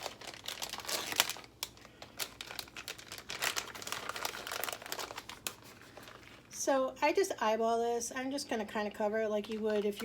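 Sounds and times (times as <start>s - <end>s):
plastic bag crinkling: 0.0s - 6.6s, 9.4s - 10.0s.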